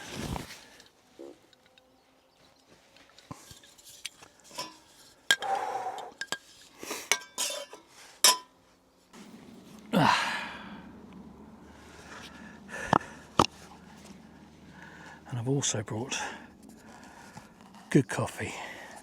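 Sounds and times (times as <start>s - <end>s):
metal cookware clinking and knocking: 4.5s - 5.5s, 7.1s - 8.5s.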